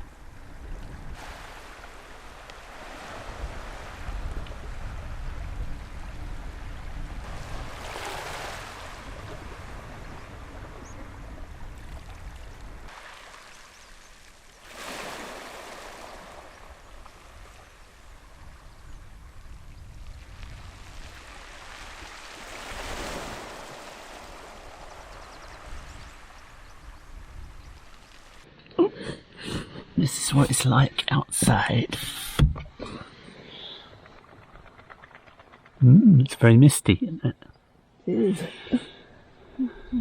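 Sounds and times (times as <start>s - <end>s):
wind on microphone: 0.0s - 12.9s, 16.0s - 28.4s
waves washing on shore: 0.8s - 18.7s, 19.4s - 28.5s.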